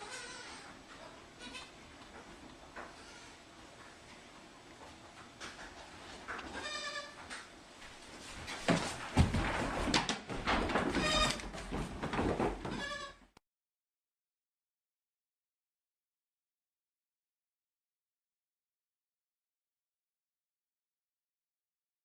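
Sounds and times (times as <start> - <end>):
goat kids bleating: 0.0 - 1.8, 2.9 - 3.5, 6.5 - 7.2, 11.0 - 11.5, 12.6 - 13.2
scuffling: 7.8 - 12.9.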